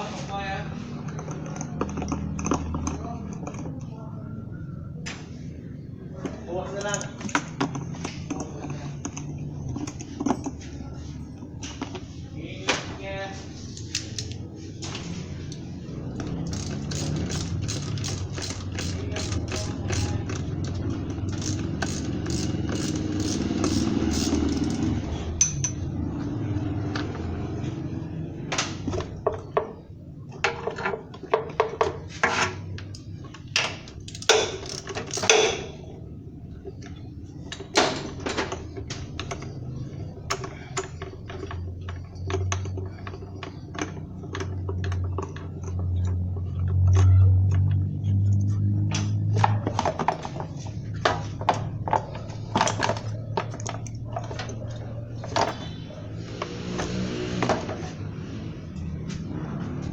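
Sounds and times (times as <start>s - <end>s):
metal tools clinking on engine parts: 6.6s - 11.9s, 15.5s - 26.0s, 30.5s - 35.8s, 37.4s - 57.9s.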